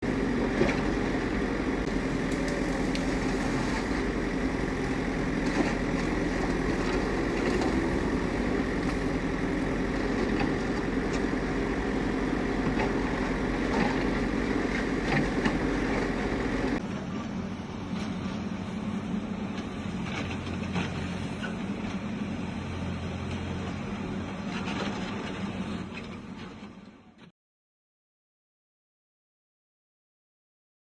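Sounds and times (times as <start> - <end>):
truck engine drone: 0.0 - 16.8.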